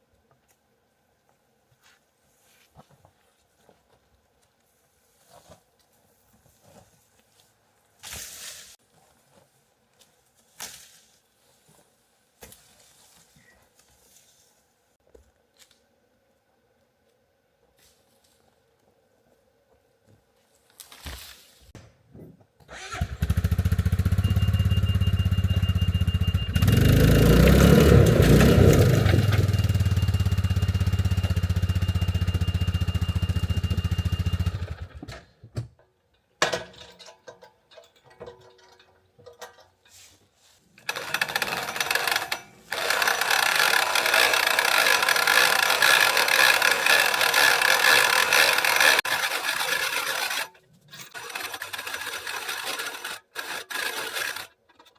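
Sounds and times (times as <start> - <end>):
engine running: 22.9 - 35.0, 41.0 - 50.5.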